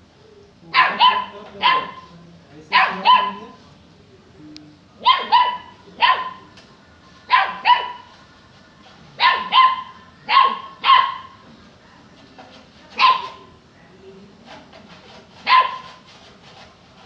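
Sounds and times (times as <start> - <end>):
puppy barking: 0.7 - 2.1, 2.7 - 3.6, 5.0 - 6.4, 7.3 - 8.1, 9.2 - 11.4, 13.0 - 13.5, 15.4 - 16.0.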